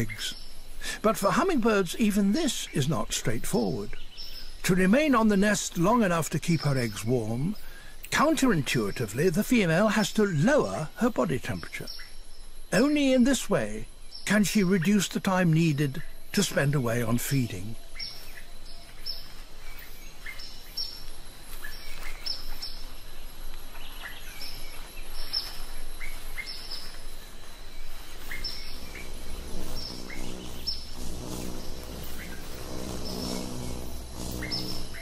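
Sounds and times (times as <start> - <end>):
forest ambience: 0.0 - 35.0
small birds chirping: 0.0 - 35.0
low steady hum: 22.9 - 35.0.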